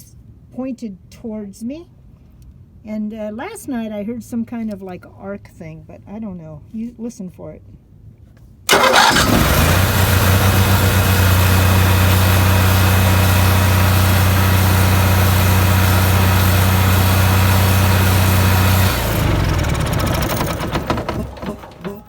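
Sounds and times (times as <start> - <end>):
generator engine running: 8.7 - 22.0
generator winding down: 8.7 - 22.0.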